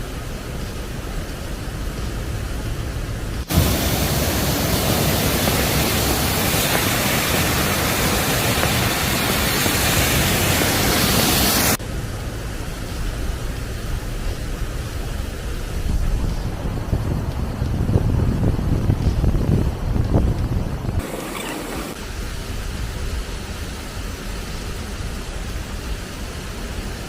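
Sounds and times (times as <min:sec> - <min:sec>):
wind rumbling on microphone: 0:00.0 - 0:27.0
waterfall rushing: 0:03.5 - 0:11.8, 0:21.0 - 0:22.6.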